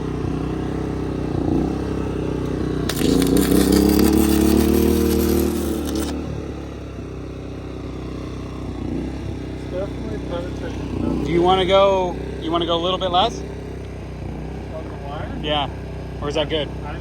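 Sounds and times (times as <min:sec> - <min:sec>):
generator engine running: 0:00.0 - 0:17.0
welding arc crackling: 0:02.9 - 0:06.2.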